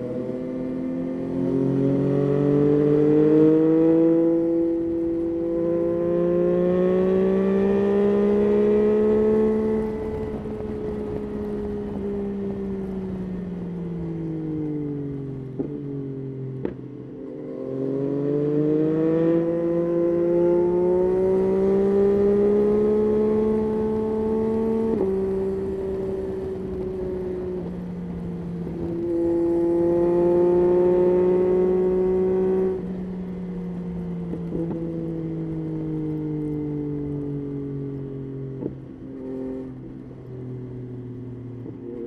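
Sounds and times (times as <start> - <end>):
motorcycle engine revving: 16.6 - 40.1.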